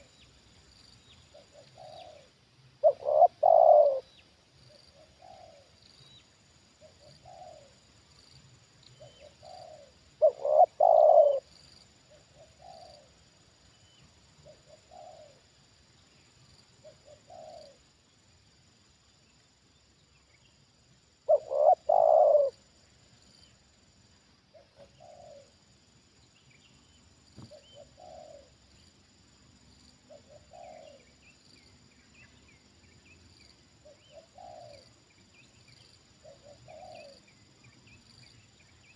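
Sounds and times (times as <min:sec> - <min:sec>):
small birds chirping: 0:00.0 - 0:38.9
doves cooing: 0:01.3 - 0:04.1, 0:05.0 - 0:05.7, 0:06.8 - 0:07.7, 0:09.0 - 0:11.5, 0:12.2 - 0:13.2, 0:14.4 - 0:15.4, 0:16.8 - 0:17.8, 0:21.3 - 0:22.6, 0:24.5 - 0:25.5, 0:27.4 - 0:28.6, 0:30.1 - 0:31.1, 0:33.8 - 0:34.9, 0:36.2 - 0:37.2.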